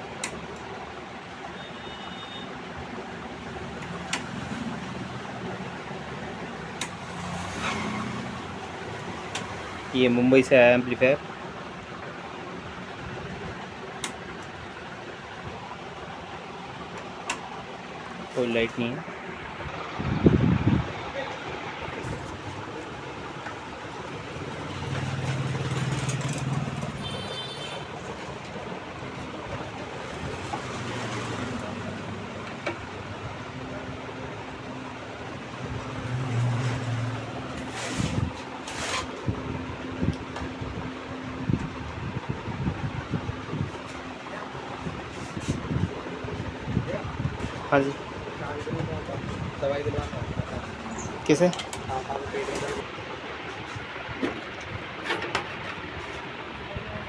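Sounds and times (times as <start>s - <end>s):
background traffic noise: 0.0s - 57.0s
vehicle engine rumble: 11.4s - 57.0s.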